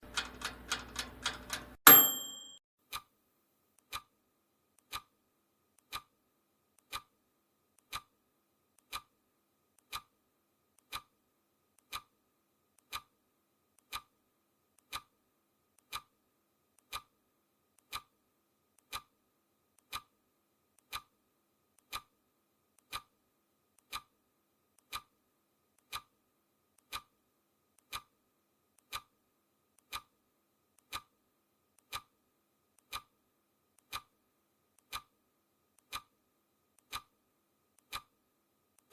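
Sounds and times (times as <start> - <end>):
clock ticking: 0.0 - 3.1, 11.8 - 12.1, 15.8 - 16.1, 20.8 - 21.1, 23.8 - 24.1, 25.8 - 26.1, 29.8 - 30.1, 30.8 - 31.1, 32.8 - 33.1, 33.8 - 34.1, 34.8 - 35.1, 35.8 - 36.1, 36.8 - 37.1, 37.8 - 38.1.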